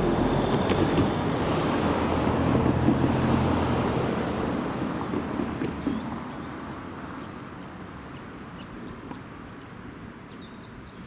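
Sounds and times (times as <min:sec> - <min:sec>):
steam train rumble: 0:00.0 - 0:06.1.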